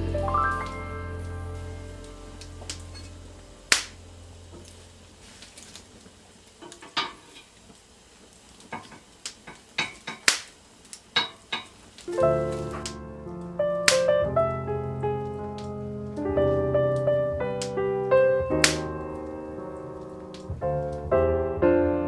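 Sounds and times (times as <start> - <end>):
music: 0.0 - 5.2, 12.1 - 22.0.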